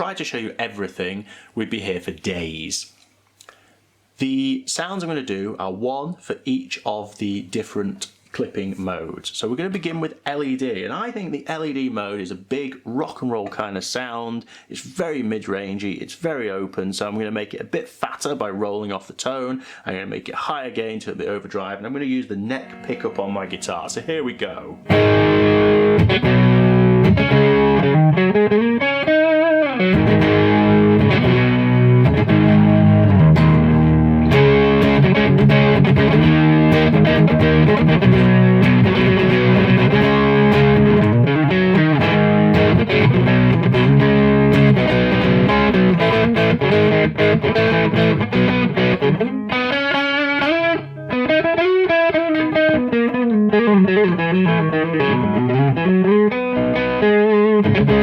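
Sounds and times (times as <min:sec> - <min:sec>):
overdriven electric guitar: 0:22.6 - 0:23.9, 0:24.8 - 0:58.0.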